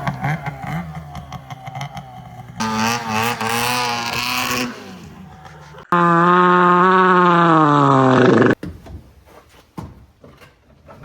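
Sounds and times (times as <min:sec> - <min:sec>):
snowmobile engine revving: 0:00.0 - 0:08.6.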